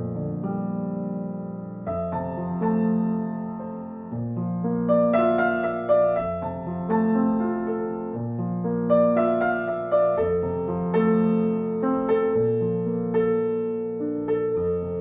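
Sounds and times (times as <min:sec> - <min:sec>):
gentle solo piano music: 0:00.0 - 0:15.0.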